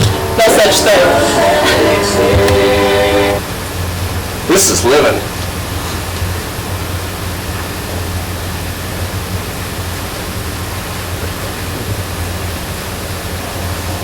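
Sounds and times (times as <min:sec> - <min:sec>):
low hum: 0:00.0 - 0:09.1
steady hiss: 0:00.0 - 0:14.0.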